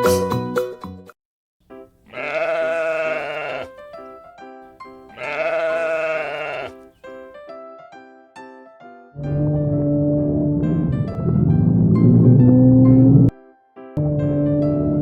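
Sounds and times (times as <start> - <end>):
sheep or goat bleating: 2.1 - 3.8, 5.1 - 6.8.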